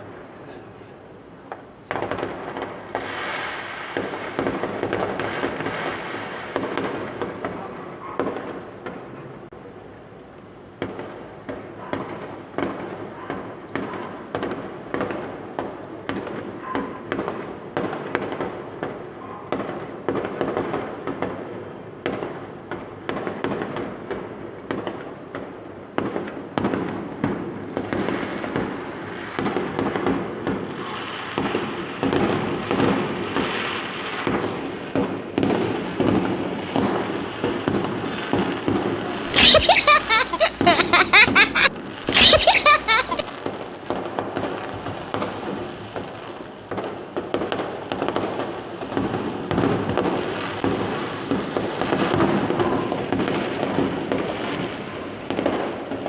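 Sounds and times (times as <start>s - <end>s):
fireworks banging and crackling: 0.0s - 56.0s.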